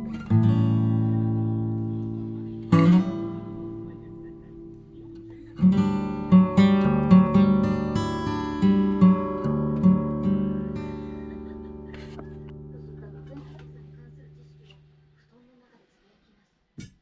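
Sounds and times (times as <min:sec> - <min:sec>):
acoustic guitar strumming: 0:00.0 - 0:15.1.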